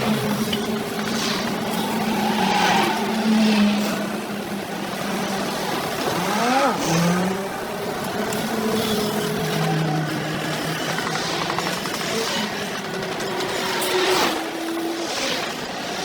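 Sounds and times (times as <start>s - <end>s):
engine revving: 0.0s - 7.7s.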